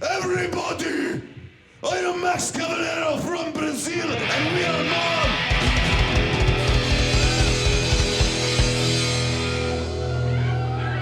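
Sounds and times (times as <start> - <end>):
distorted guitar: 4.0 - 11.0
rock band playing: 4.2 - 11.0
rapid drum hits: 5.2 - 9.9
crashing cymbals: 5.6 - 10.4.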